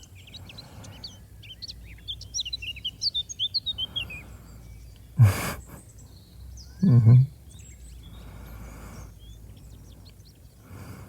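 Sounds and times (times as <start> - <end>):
small songbirds chirping: 0.0 - 11.0
man sighing: 5.2 - 5.8, 6.8 - 7.3.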